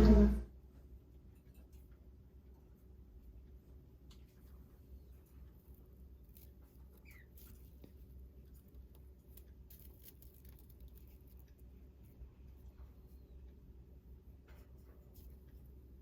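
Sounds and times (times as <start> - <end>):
low hum: 0.0 - 1.1
faint clicks and ticks: 1.1 - 16.0.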